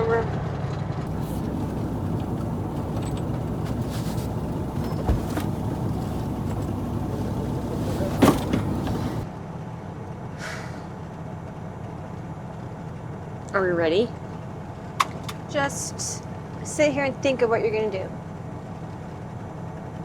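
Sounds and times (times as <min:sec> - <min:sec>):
diesel truck engine running: 0:01.1 - 0:09.3
sharp knocks: 0:01.1 - 0:09.3.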